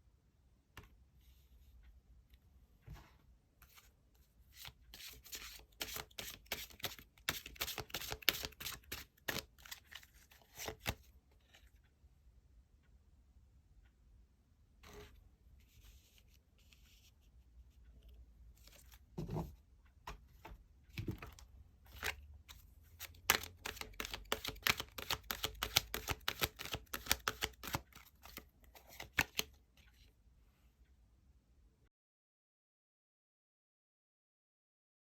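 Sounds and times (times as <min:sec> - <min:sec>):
cards rustling: 0:04.5 - 0:11.0, 0:23.0 - 0:29.5
cards shuffling with crisp clicks: 0:04.6 - 0:11.7, 0:23.0 - 0:29.5.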